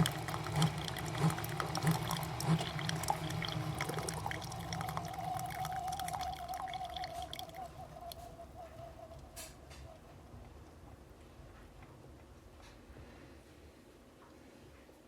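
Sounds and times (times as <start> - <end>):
coffee dripping into mug: 0.0 - 9.9
coffee maker pump humming: 0.0 - 10.0.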